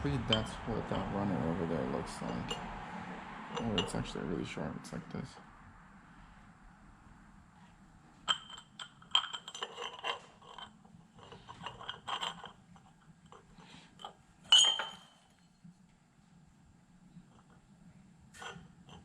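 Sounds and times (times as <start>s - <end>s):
metal pipes clinking together: 2.2s - 2.6s, 3.5s - 4.1s, 8.3s - 12.6s, 14.0s - 15.2s.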